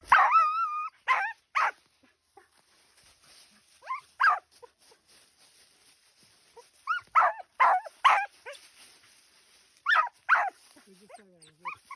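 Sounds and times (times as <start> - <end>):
dog yelping barks: 0.1 - 1.8, 3.8 - 4.5, 6.8 - 8.6, 9.8 - 10.6.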